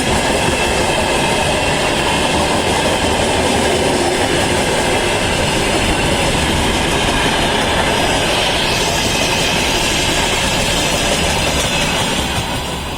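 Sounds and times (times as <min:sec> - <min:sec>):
train wheels rumbling on rails: 0:00.0 - 0:12.9.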